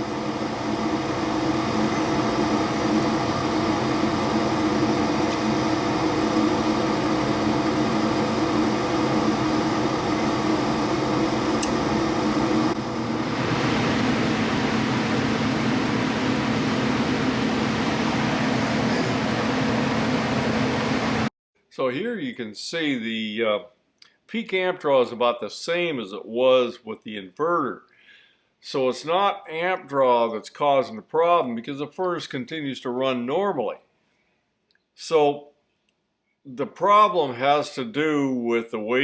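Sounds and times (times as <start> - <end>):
gas furnace running: 0.0 - 21.3.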